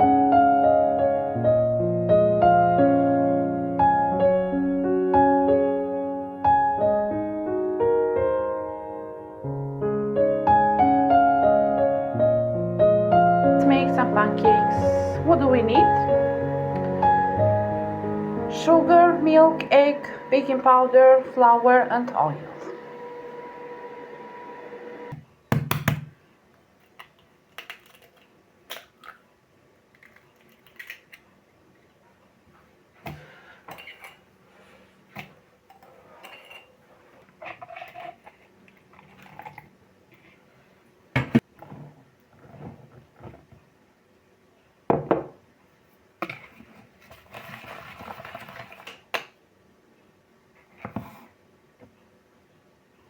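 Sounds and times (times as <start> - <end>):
rustling and scraping: 32.5 - 40.8, 41.4 - 43.7, 45.9 - 49.0, 50.6 - 51.4
dishes and cutlery clinking: 33.7 - 34.3, 35.7 - 36.8.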